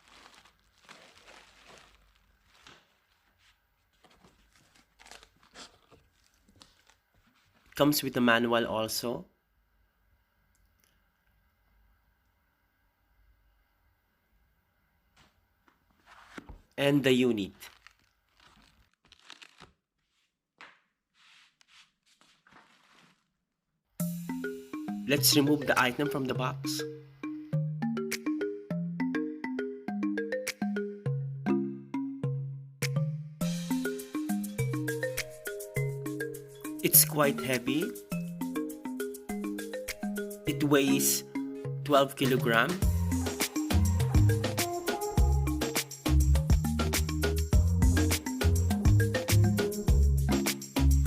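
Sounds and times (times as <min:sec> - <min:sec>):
packaging rustling: 0:00.0 - 0:07.8, 0:17.3 - 0:20.3, 0:21.6 - 0:23.5.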